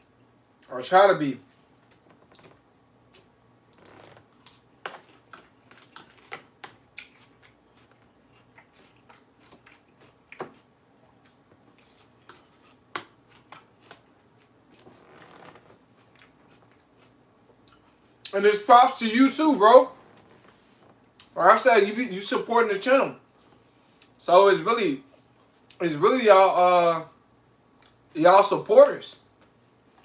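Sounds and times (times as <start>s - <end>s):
chewing crunchy lettuce: 1.9s - 18.4s.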